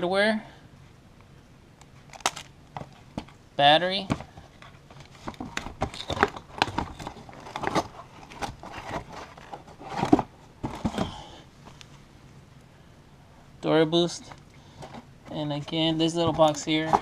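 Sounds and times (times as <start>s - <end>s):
packaging rustling and crinkling: 4.2s - 11.1s.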